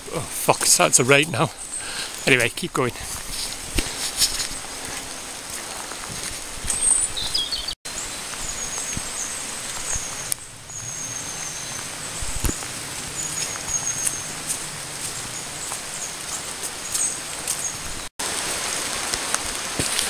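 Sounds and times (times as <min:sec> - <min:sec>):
steady rain: 0:00.0 - 0:20.0
wind hiss: 0:00.0 - 0:20.0
faint footsteps: 0:00.6 - 0:07.4, 0:11.4 - 0:18.0
high bird chirps: 0:06.7 - 0:14.4.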